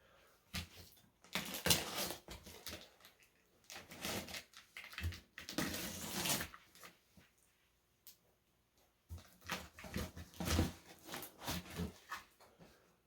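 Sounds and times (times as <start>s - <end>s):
packing tape ripping: 1.2s - 2.9s, 3.7s - 6.9s
cardboard flaps rustling and scraping: 9.3s - 12.6s.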